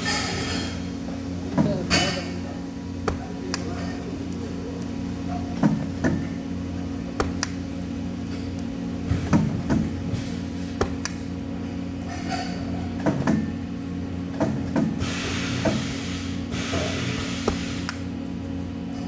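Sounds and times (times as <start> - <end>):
machine hum: 0.0 - 19.0
sharp knocks and clanks: 14.3 - 15.9.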